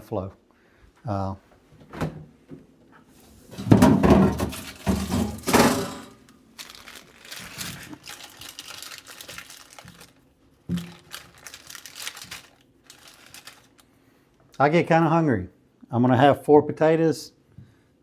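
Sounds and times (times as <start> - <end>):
packaging crinkling and rustling: 3.2 - 14.0
knocks: 3.6 - 5.9.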